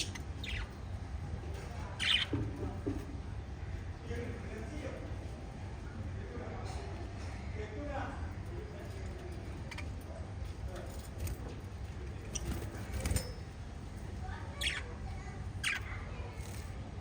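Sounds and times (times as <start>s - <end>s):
parrots chirping: 0.0s - 1.0s, 1.6s - 2.4s, 14.5s - 16.7s
steady low hum: 0.0s - 17.0s.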